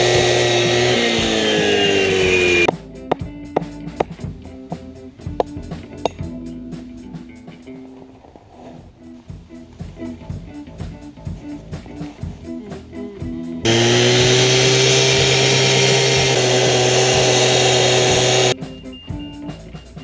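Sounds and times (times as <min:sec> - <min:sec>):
loud power tool running: 0:00.0 - 0:02.7, 0:13.6 - 0:18.6
guitar music: 0:00.0 - 0:08.2, 0:08.9 - 0:20.0.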